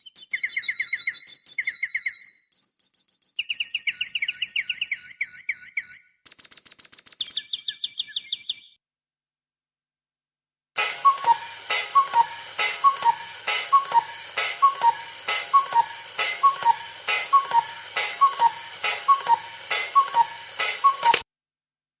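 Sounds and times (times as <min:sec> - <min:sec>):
click: 0:10.8 - 0:21.2.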